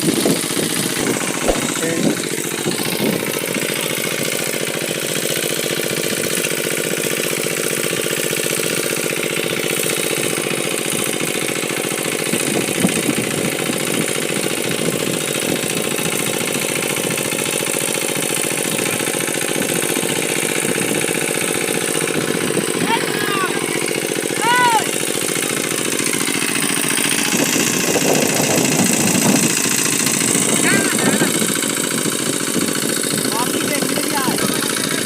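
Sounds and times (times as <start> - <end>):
engine running steadily: 0.0 - 35.0.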